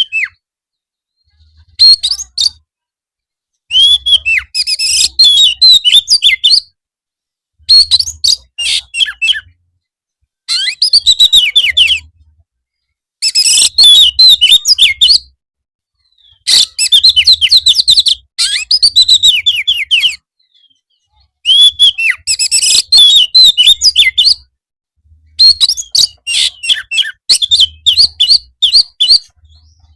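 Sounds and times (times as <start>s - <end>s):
bird singing whistled chattering notes: 1.1s - 2.6s, 3.7s - 6.7s, 7.7s - 9.6s, 10.5s - 12.1s, 13.2s - 15.4s, 16.1s - 24.4s, 25.3s - 29.9s.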